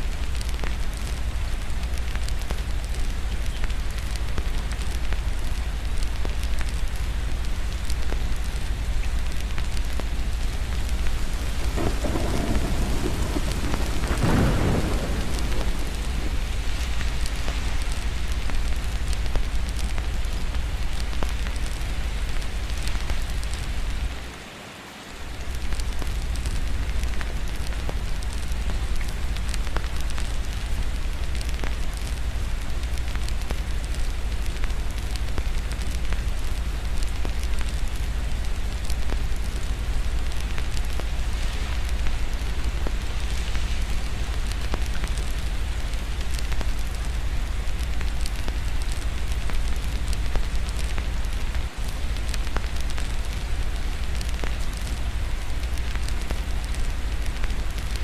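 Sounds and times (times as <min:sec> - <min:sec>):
wood fire crackling: 0:00.0 - 0:24.3, 0:25.3 - 0:58.0
rain hiss: 0:00.0 - 0:58.0
low rumble: 0:09.6 - 0:20.1.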